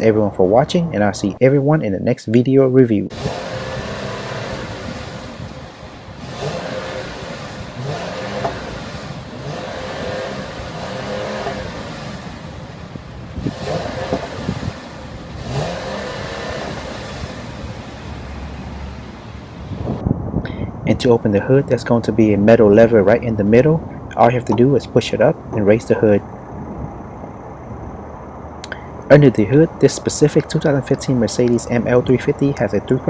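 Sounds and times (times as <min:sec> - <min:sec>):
car engine revving: 0:03.1 - 0:20.0.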